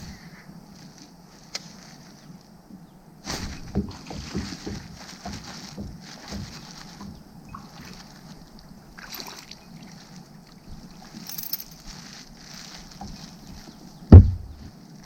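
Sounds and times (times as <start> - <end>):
faint water sounds: 0.0 - 15.0
light knocks on kayak: 14.1 - 14.6.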